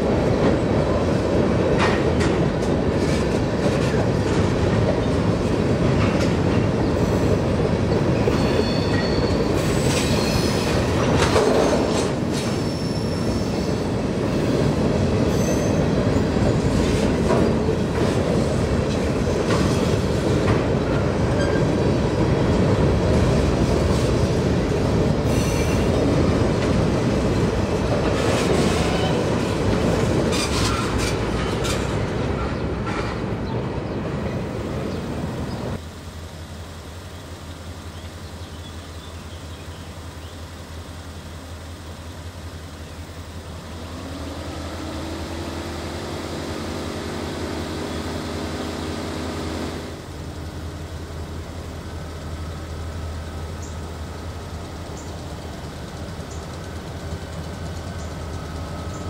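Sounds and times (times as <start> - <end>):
freight train rumbling on rails: 0.0 - 59.0
high-pitched wheel squeals: 8.2 - 10.8, 12.5 - 13.9, 15.3 - 16.0.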